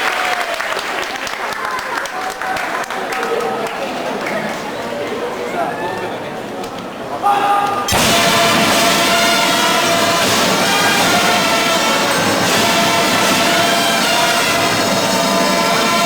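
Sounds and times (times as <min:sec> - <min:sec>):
brass band playing sustained chords: 0:07.9 - 0:16.0.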